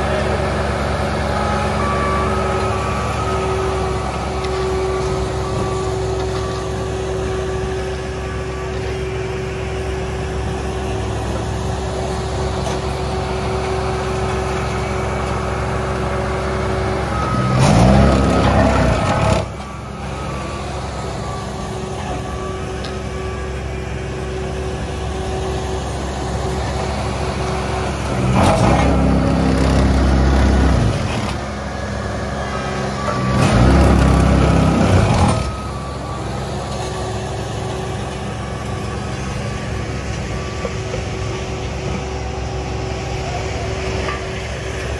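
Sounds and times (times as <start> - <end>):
diesel paving machine engine: 0.0 - 44.9
reversing alarm beeping: 0.0 - 44.9.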